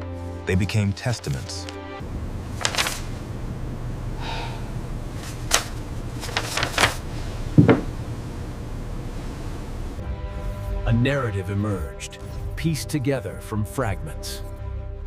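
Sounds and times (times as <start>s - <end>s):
steady low hum: 2.0s - 10.2s
sharp clicks and knocks: 7.6s - 7.9s.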